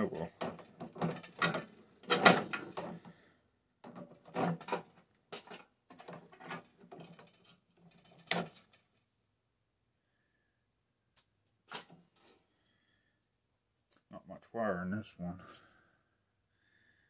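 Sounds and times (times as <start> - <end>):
metal parts knocking and rattling: 0.2 - 3.1, 3.8 - 8.9.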